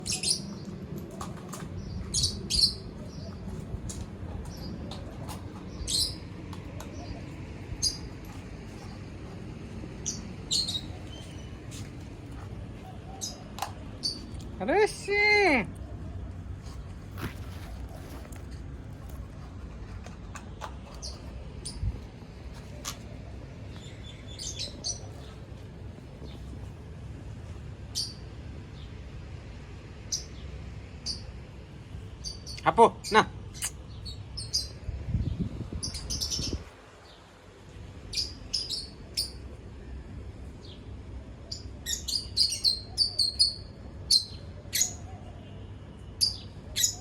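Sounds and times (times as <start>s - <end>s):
bird chirping: 0.0s - 0.8s, 1.5s - 3.6s, 10.0s - 11.6s, 23.7s - 25.4s, 32.2s - 37.2s, 38.1s - 39.4s, 41.5s - 47.0s
small birds chirping: 0.0s - 19.2s, 20.7s - 26.9s, 27.8s - 29.1s, 30.0s - 47.0s
steady low hum: 0.0s - 47.0s.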